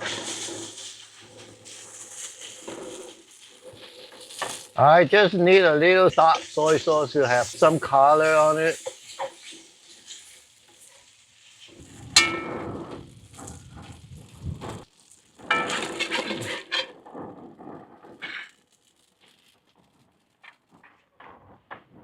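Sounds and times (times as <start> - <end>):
metal spatula scraping a wok: 0.0 - 4.8, 6.1 - 17.0
food crackling: 0.0 - 22.0
ringing metal clangs: 12.2 - 12.8.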